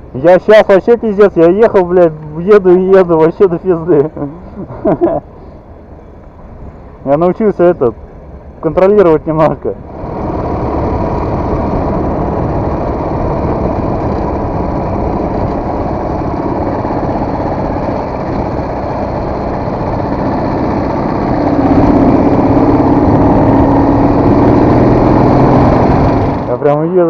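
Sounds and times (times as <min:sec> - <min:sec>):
motorcycle engine running: 0:09.9 - 0:26.6.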